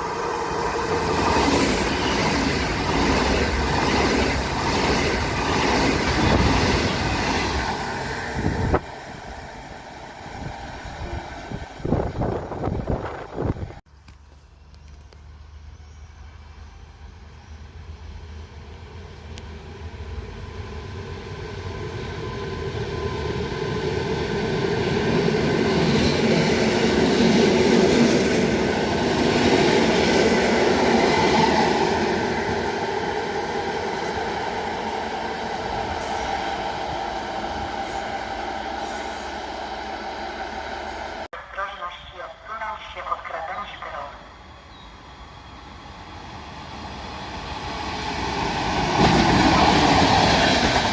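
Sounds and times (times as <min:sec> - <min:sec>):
train wheels rolling on rails: 0:00.0 - 0:13.8, 0:44.7 - 0:50.9
electric train hum: 0:00.0 - 0:50.9.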